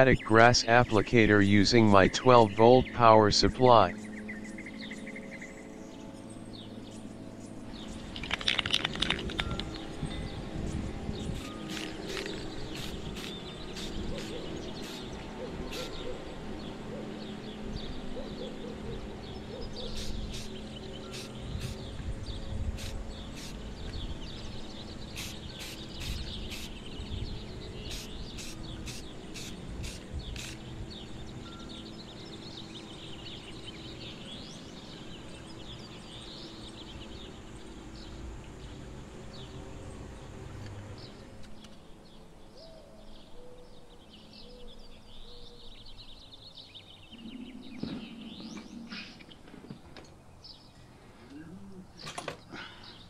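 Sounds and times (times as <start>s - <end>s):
steady low hum: 0.0s - 8.5s
birds chirping and singing: 0.0s - 40.3s, 41.0s - 53.0s.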